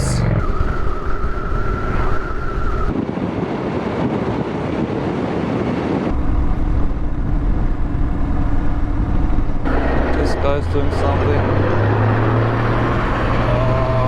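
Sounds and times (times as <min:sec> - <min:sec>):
motorcycle engine drone: 0:00.0 - 0:03.0, 0:06.0 - 0:14.0
wind rushing over microphone: 0:00.0 - 0:14.0.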